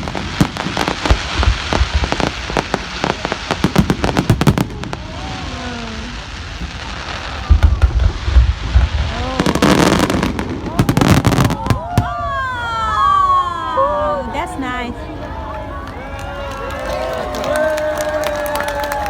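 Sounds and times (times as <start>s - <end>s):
fireworks crackling bangs: 0.0s - 13.1s
fireworks deep booms: 0.0s - 13.2s.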